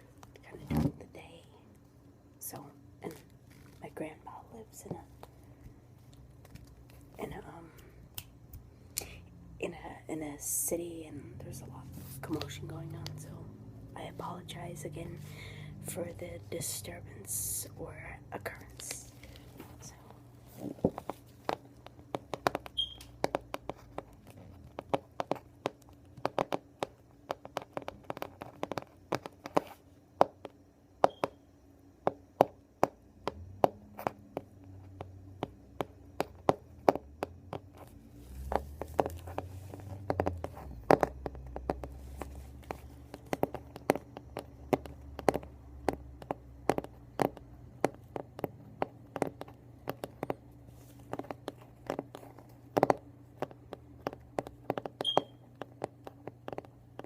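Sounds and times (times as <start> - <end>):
low background rumble: 0.0 - 30.9, 31.6 - 57.0
fingernails tapping on a book: 20.6 - 31.4, 32.0 - 57.0.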